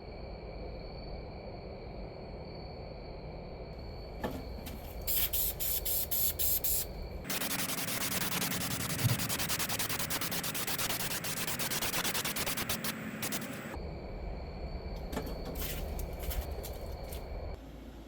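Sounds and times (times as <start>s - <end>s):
spray paint hissing: 4.9s - 13.8s.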